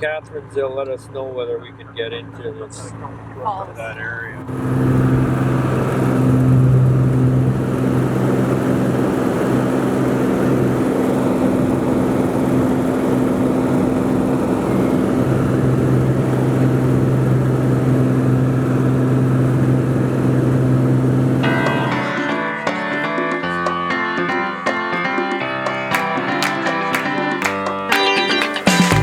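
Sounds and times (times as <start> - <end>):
propeller plane engine drone: 0.0 - 22.5.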